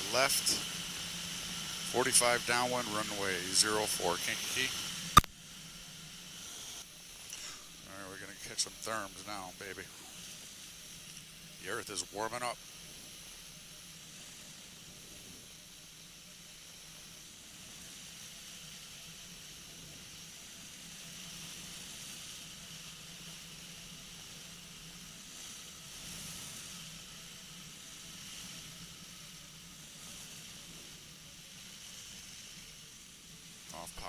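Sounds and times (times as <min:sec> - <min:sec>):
aircraft engine drone: 0:00.0 - 0:34.0
airflow hiss: 0:00.0 - 0:34.0.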